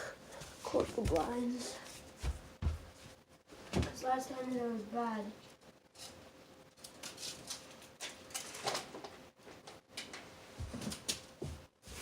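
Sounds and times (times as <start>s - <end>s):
window blinds rattling and clicking: 6.9s - 9.2s.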